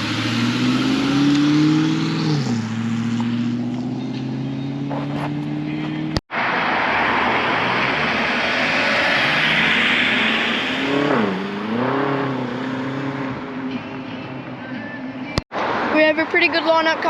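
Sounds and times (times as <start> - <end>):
car engine accelerating: 0.0 - 15.9.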